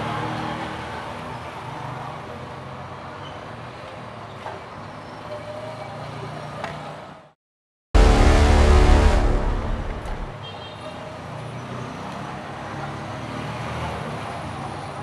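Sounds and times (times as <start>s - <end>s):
loud music: 8.0s - 10.4s
road traffic noise: 8.0s - 10.4s.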